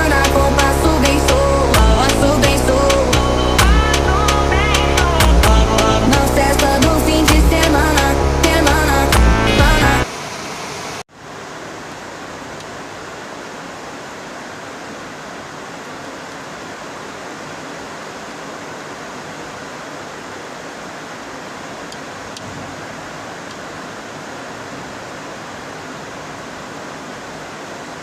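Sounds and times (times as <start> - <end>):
heavy rain falling: 0.0 - 10.1.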